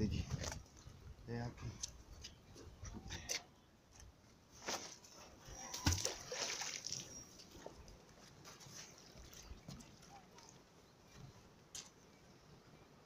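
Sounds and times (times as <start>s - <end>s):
river water splashing: 5.7s - 7.6s.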